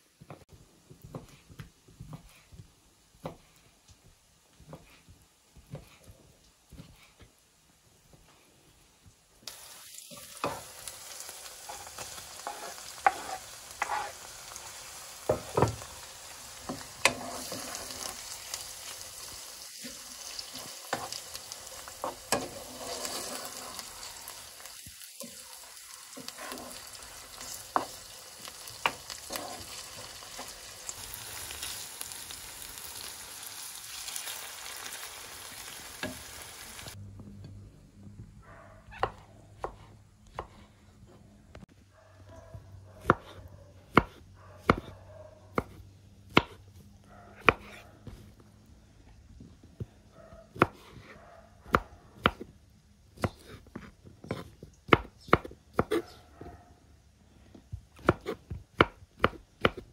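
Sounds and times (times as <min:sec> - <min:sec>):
chicken sizzling in oil: 0:09.4 - 0:37.0.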